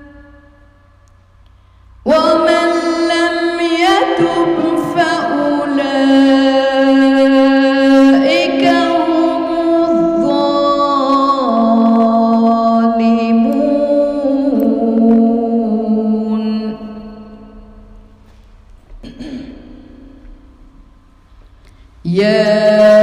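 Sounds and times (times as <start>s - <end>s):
woman reciting melodically: 0.0s - 1.0s, 2.0s - 18.2s, 22.0s - 23.0s.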